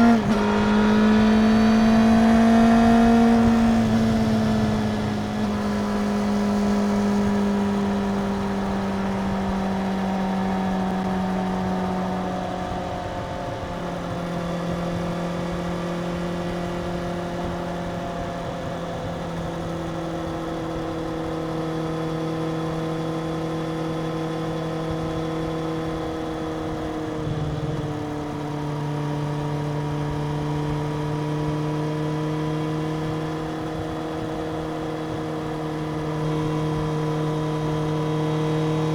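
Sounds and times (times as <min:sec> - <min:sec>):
motorcycle engine running at high revs: 0:00.0 - 0:38.9.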